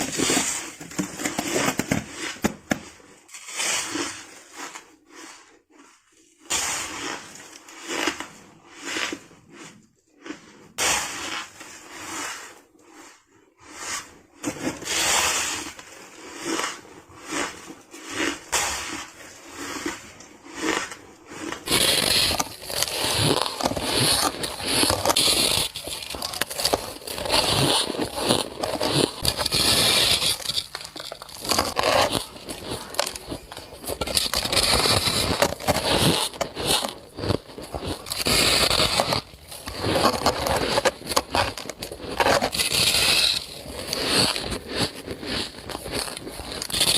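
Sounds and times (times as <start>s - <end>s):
ice crunching when bitten: 15.5s - 46.9s.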